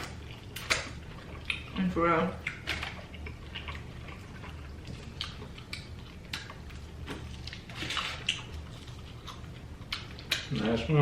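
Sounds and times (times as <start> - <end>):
low steady hum: 0.0 - 11.0
chewing and pulling chicken wings: 2.4 - 10.8.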